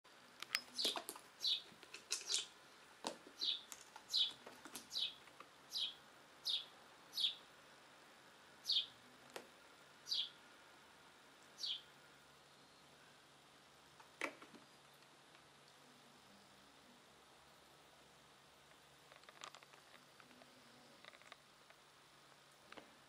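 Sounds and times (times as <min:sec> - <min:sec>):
small bird chirping: 0:00.4 - 0:02.6, 0:03.3 - 0:07.5, 0:08.6 - 0:09.0, 0:10.0 - 0:10.4, 0:11.5 - 0:12.9.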